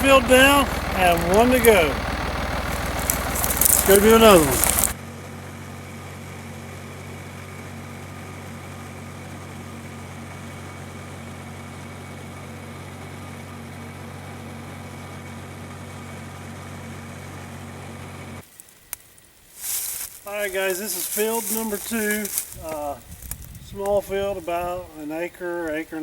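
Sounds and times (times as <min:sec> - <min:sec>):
tractor engine droning: 0:00.0 - 0:18.7, 0:19.5 - 0:24.7.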